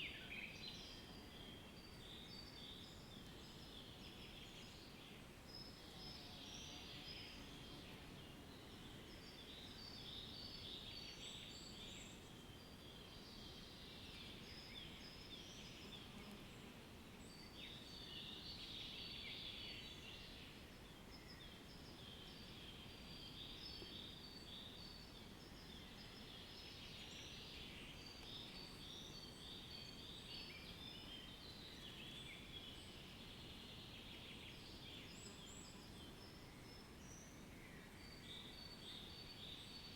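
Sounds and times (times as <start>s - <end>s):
low steady background hiss: 0.0s - 39.9s.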